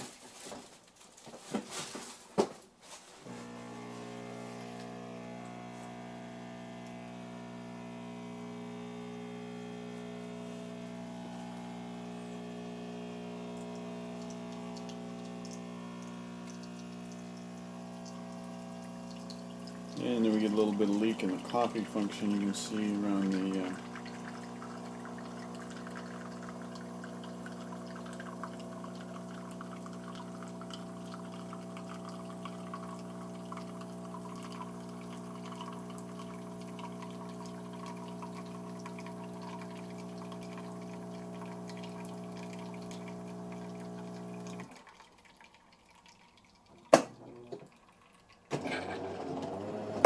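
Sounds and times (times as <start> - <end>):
coffee machine pump humming: 3.2 - 50.0
coffee pouring into cup: 3.3 - 50.0.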